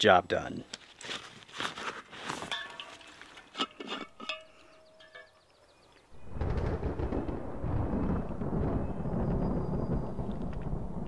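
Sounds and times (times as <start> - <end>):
thunder rumbling: 6.1 - 11.0
faint clicks and chirps: 8.3 - 10.7.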